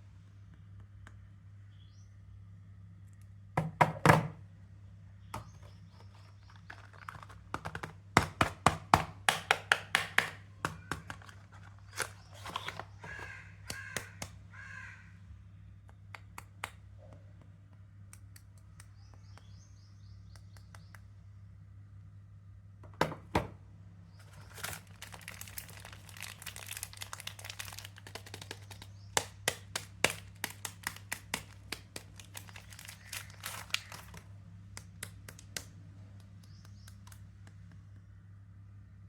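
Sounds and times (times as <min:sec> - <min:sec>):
steady low hum: 0:00.0 - 0:03.6, 0:10.3 - 0:39.0
taps and knocks on soap bar: 0:03.6 - 0:04.4, 0:05.3 - 0:14.4, 0:28.0 - 0:32.4
wrapper crinkling: 0:05.9 - 0:07.9, 0:24.2 - 0:34.3.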